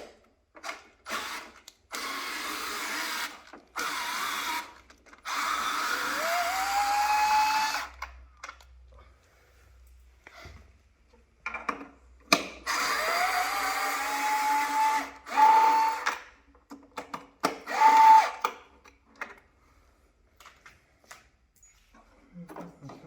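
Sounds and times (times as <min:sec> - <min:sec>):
electric screwdriver whine: 0:01.1 - 0:08.0, 0:12.7 - 0:16.2, 0:17.7 - 0:18.5.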